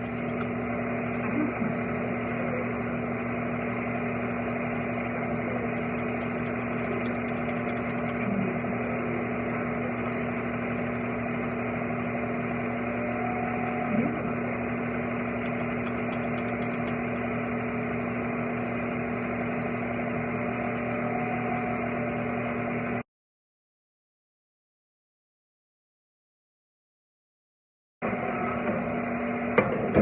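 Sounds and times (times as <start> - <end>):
small electric motor humming: 0.0 - 0.8, 5.4 - 8.3, 15.2 - 17.2.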